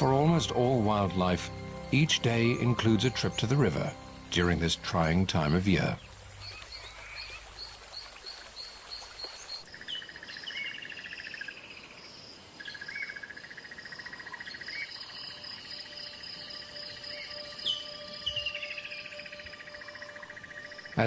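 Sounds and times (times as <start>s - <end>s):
long buzzing trills: 0.0s - 6.4s, 15.0s - 21.0s
insect chirps and trills: 0.0s - 21.0s.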